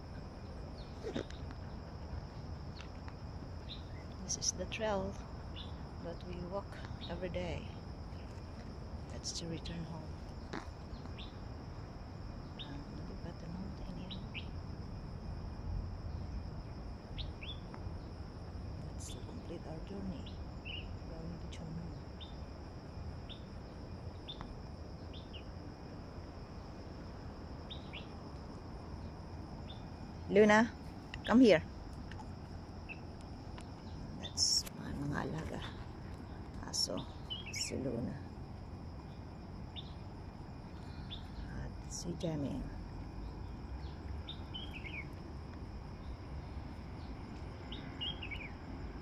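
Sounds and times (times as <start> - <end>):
high insect drone: 0.0 - 49.0
bird chirping: 17.2 - 17.7, 32.8 - 38.1, 40.7 - 41.6, 42.4 - 45.2, 47.0 - 48.6.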